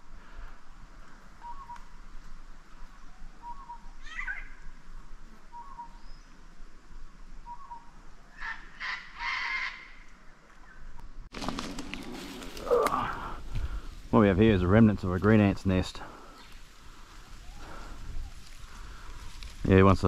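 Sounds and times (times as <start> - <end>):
wild birds calling: 0.0 - 19.6.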